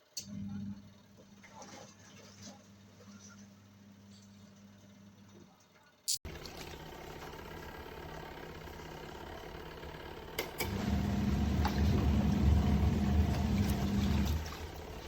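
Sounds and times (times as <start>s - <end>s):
deep loud motor hum: 6.3s - 15.0s
washing machine motor hum: 6.3s - 15.0s
washing machine click: 10.4s - 14.5s.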